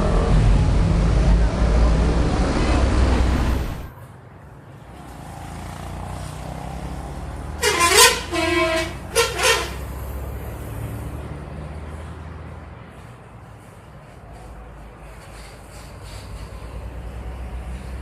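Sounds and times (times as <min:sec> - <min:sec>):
bus engines rumbling: 0:00.0 - 0:18.0
road noise: 0:00.0 - 0:18.0
bus horn playing musical tones: 0:07.6 - 0:10.4.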